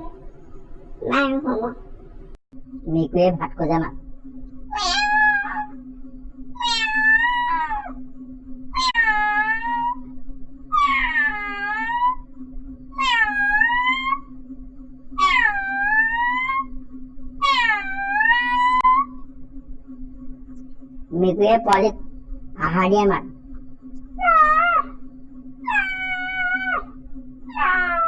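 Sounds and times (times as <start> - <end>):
low hum: 0.0 - 28.0
cat meowing: 4.8 - 5.7, 6.6 - 8.0, 8.8 - 10.0, 10.7 - 12.2, 13.0 - 14.3, 15.2 - 16.7, 17.4 - 19.1, 24.2 - 25.0, 25.6 - 26.9, 27.5 - 28.0.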